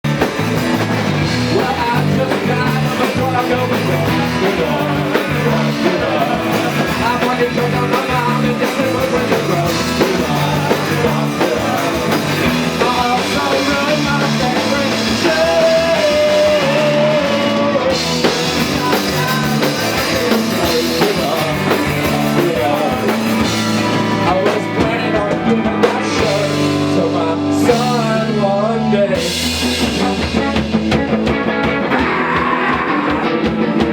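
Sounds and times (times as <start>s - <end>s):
live rock band playing: 0.0s - 33.9s.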